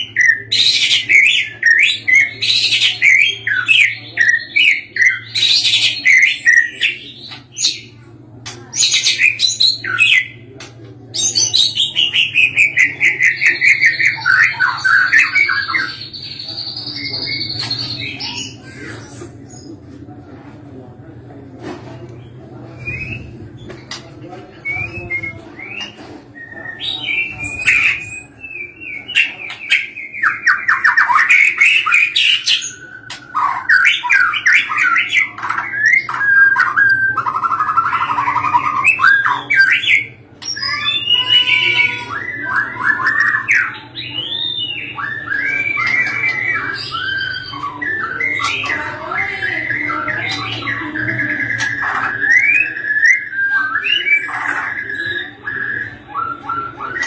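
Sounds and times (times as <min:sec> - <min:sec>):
bird singing whistled phrases: 0:22.7 - 0:23.3, 0:24.6 - 0:57.0.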